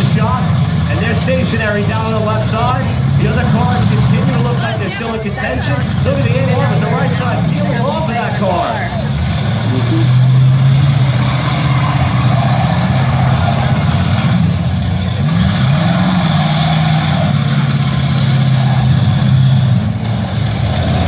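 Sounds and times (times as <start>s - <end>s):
car engines running loud: 0.0s - 21.0s
engine revving: 5.7s - 21.0s.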